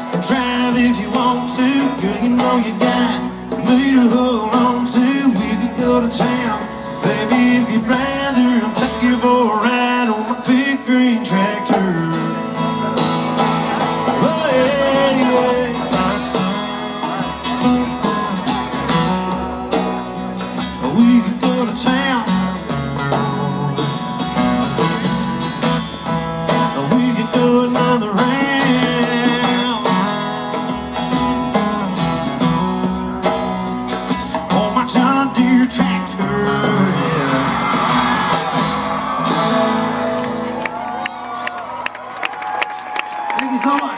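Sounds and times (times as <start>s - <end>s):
country band playing: 0.0s - 43.9s.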